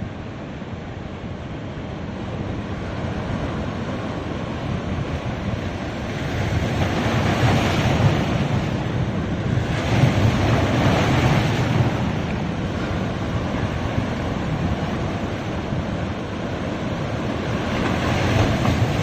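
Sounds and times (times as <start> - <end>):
ocean waves breaking on beach: 0.0 - 19.0.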